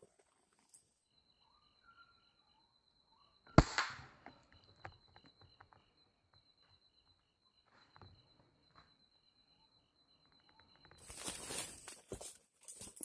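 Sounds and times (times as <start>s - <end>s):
pulsing insect chirp: 0.6s - 11.8s
air rifle shot: 3.6s - 4.3s.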